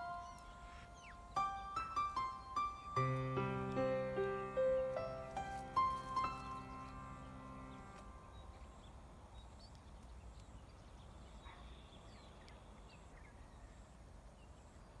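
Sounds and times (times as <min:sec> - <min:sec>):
piano note: 0:00.0 - 0:08.4
faint bird chirps: 0:00.0 - 0:15.0.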